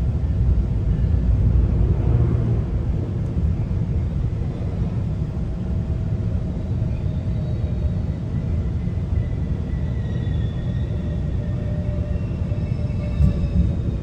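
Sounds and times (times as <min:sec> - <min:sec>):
train wheels rumbling on track: 0:00.0 - 0:14.0
faint high squealing: 0:06.8 - 0:14.0.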